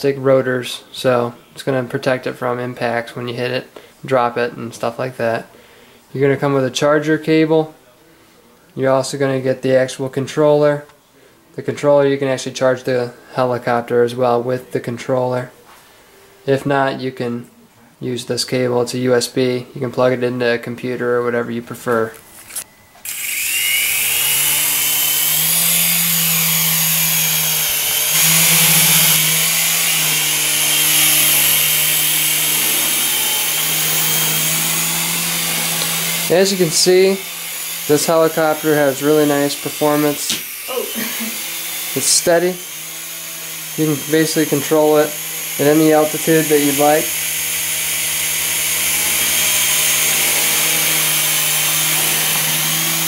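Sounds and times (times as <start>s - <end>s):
toy helicopter rotors humming: 23.0s - 53.0s.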